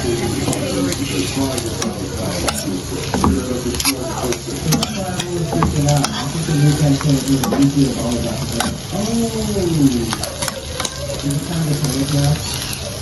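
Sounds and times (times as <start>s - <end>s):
spoon scraping metal pot: 1.8s - 6.6s, 7.4s - 7.8s, 10.1s - 10.9s.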